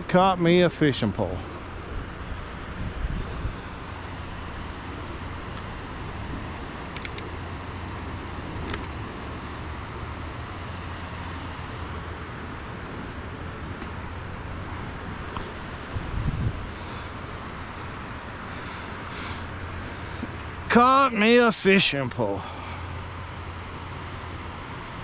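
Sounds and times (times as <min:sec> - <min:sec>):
low rumbling outdoor noise: 0:00.0 - 0:25.0
faint clicks: 0:06.9 - 0:07.3.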